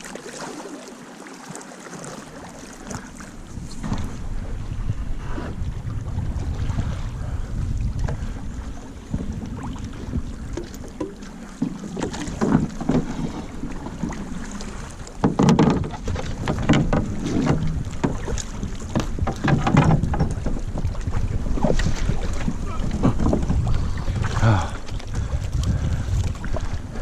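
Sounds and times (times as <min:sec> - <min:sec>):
wind rumbling on microphone: 0:02.8 - 0:27.0
knocks and thuds: 0:15.2 - 0:18.3, 0:19.0 - 0:20.6.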